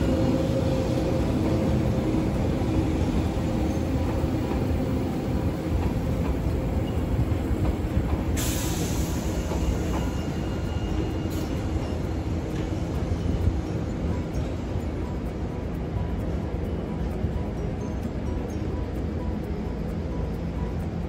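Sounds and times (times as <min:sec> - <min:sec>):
tram wheels rumbling: 0:00.0 - 0:21.0
high hiss: 0:08.2 - 0:14.4.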